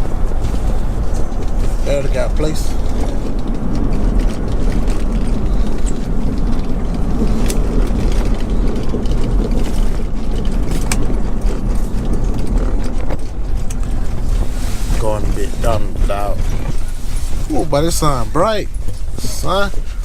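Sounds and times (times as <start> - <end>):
car cabin road rumble: 0.0 - 20.0.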